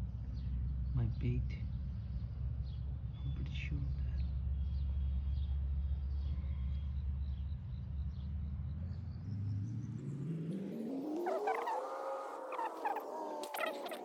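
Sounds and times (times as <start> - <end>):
insects or birds chirping: 11.0 - 14.0.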